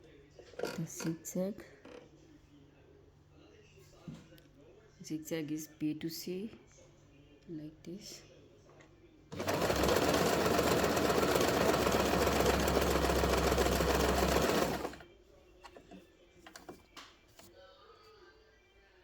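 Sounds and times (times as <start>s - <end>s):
sewing machine stitching: 9.3s - 15.0s.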